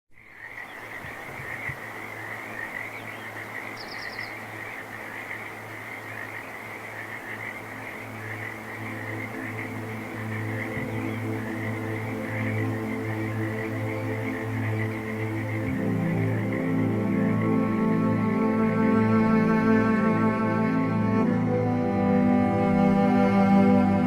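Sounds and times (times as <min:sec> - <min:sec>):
animal chorus: 0:00.2 - 0:19.0
music with sustained tones: 0:00.4 - 0:24.0.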